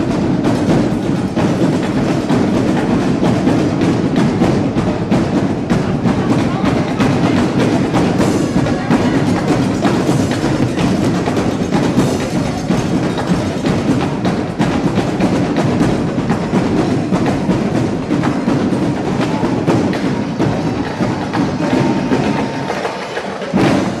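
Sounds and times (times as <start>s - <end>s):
drum section playing cadence: 0.0s - 24.0s.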